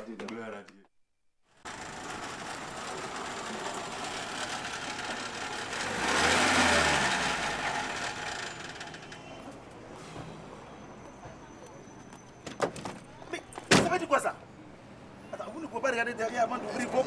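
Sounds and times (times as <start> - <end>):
car engine running: 1.6 - 9.5.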